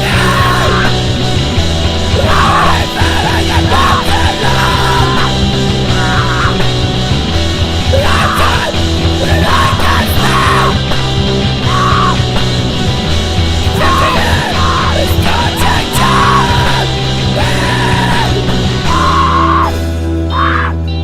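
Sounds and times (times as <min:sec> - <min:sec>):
person screaming vocals: 0:00.0 - 0:01.1, 0:02.1 - 0:06.7, 0:07.9 - 0:10.8, 0:11.6 - 0:12.2, 0:13.7 - 0:20.9
hardcore punk music: 0:00.0 - 0:21.0.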